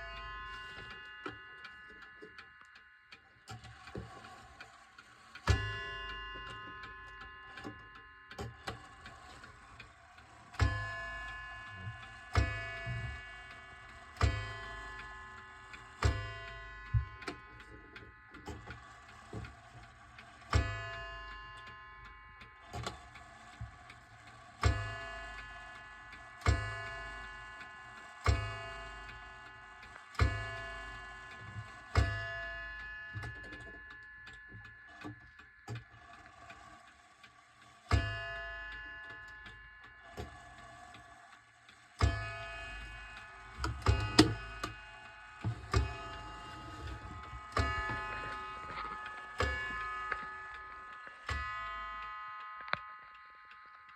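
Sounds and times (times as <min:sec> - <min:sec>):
mantel clock striking: 0:00.0 - 0:53.2
clock ticking: 0:00.0 - 0:53.9.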